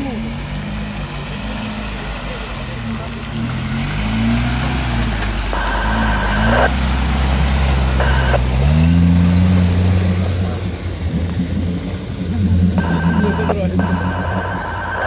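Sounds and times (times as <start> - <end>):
off-road vehicle engine under load: 0.0 - 15.0
water churning around wheels: 0.0 - 15.0.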